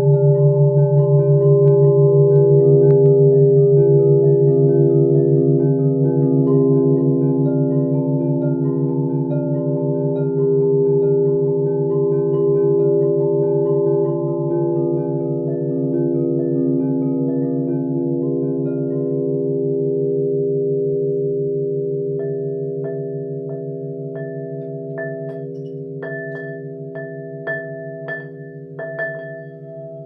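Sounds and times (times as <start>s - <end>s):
singing bowls ringing: 0.0s - 30.0s.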